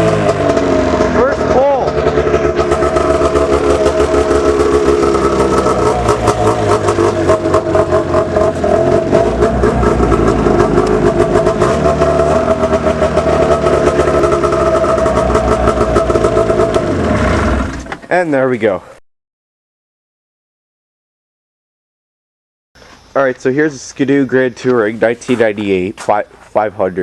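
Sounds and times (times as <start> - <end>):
snowmobile engine running: 0.0 - 17.9.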